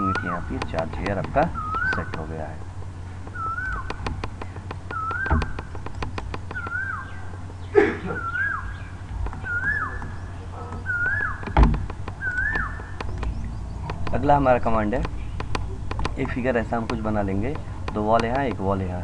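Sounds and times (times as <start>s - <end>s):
computer mouse clicking: 0.0s - 2.3s, 3.2s - 6.8s, 9.1s - 14.3s, 14.9s - 18.7s
bird chirping: 0.0s - 18.8s
loud thumps: 3.2s - 8.1s, 9.1s - 18.6s.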